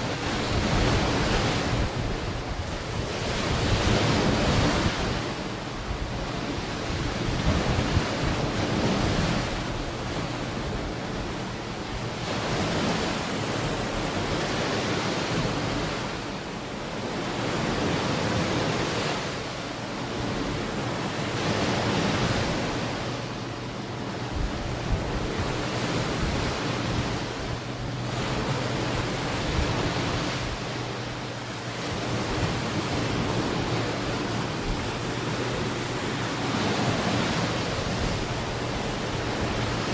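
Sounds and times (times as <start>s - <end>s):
wind on microphone: 0.0s - 16.2s, 20.0s - 39.9s
ocean waves on beach: 0.0s - 39.9s.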